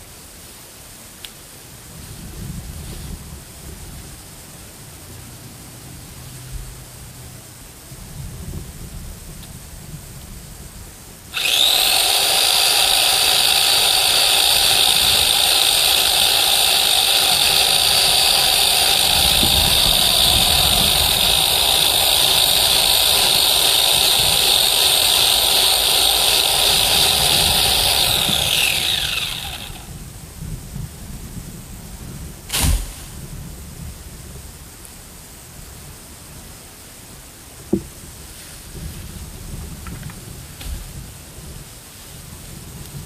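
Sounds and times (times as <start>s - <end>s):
electric chainsaw motor whining: 11.3s - 30.0s.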